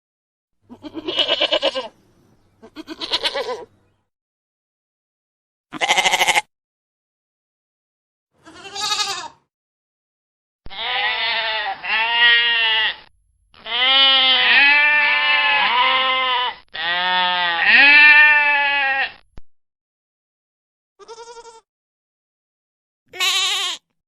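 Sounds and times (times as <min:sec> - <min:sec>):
goat bleating: 0:00.7 - 0:02.0, 0:02.6 - 0:03.7, 0:05.7 - 0:06.5, 0:08.4 - 0:09.4, 0:10.7 - 0:19.2, 0:21.0 - 0:21.7, 0:23.1 - 0:23.9.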